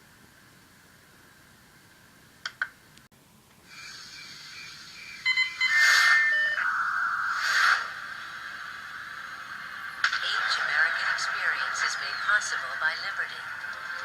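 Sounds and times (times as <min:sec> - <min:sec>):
electronic beeps and tones: 0:03.8 - 0:08.0.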